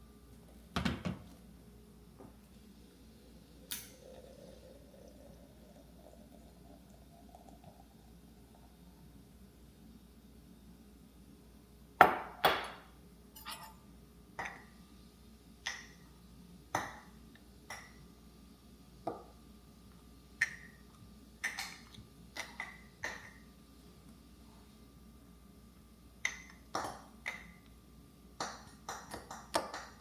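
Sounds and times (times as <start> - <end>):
kitchenware clinking: 3.7 - 4.2, 13.4 - 13.8.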